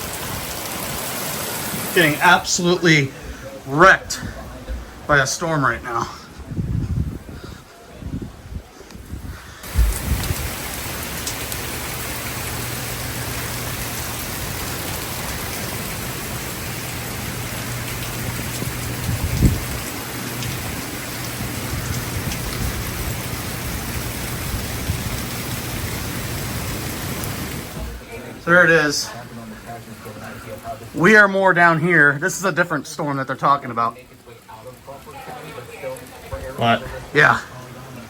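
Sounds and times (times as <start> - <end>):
heavy rain pouring: 0.0 - 38.0
low thumps: 8.1 - 10.7.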